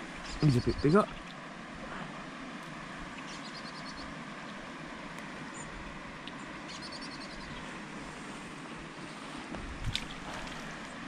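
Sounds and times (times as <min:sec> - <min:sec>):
outdoor background noise: 0:00.0 - 0:11.0
small bird chirping: 0:00.2 - 0:01.4, 0:03.1 - 0:04.6, 0:05.5 - 0:07.7.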